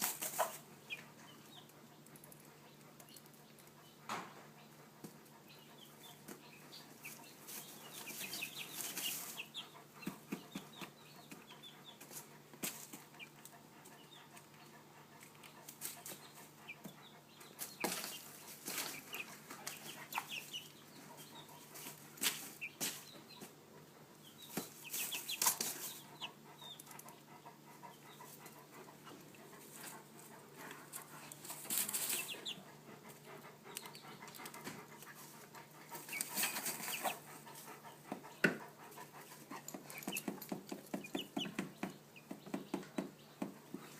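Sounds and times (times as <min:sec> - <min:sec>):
chickens scratching in hay: 0:00.0 - 0:00.7, 0:07.1 - 0:09.5, 0:17.7 - 0:20.2, 0:21.6 - 0:23.1, 0:24.5 - 0:26.1, 0:31.2 - 0:32.4, 0:35.2 - 0:37.6
chickens clucking: 0:00.0 - 0:43.9.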